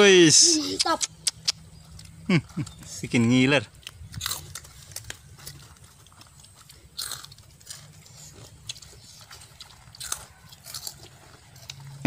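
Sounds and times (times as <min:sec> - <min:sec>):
chewing crackers: 0:00.6 - 0:12.0.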